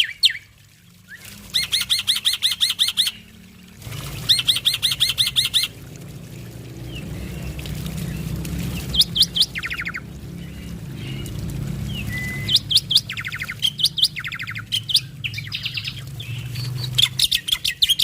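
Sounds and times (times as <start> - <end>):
low steady hum: 0.0 - 18.0
starling singing: 1.5 - 3.3, 8.7 - 18.0.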